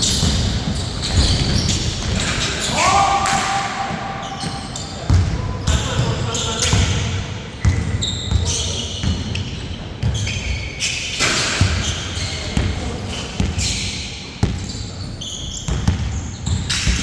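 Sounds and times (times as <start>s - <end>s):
basketball bouncing on court: 0.0s - 2.4s, 3.2s - 10.6s, 11.6s - 13.8s, 14.4s - 14.8s, 15.7s - 17.0s.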